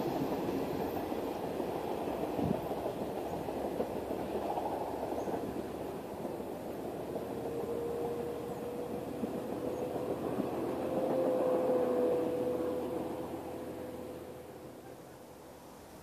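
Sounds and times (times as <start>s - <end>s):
train rumbling past: 0.0s - 16.0s.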